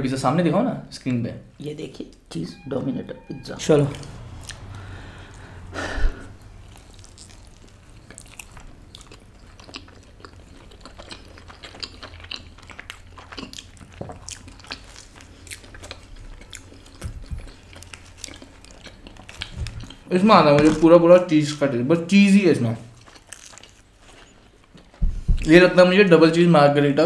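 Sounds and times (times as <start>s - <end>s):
people chewing pizza: 3.8s - 21.7s, 22.3s - 25.8s.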